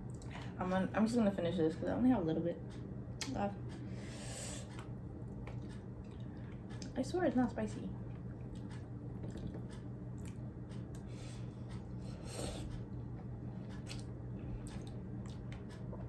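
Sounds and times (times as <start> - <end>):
person chewing food: 4.6 - 6.9, 8.1 - 16.0.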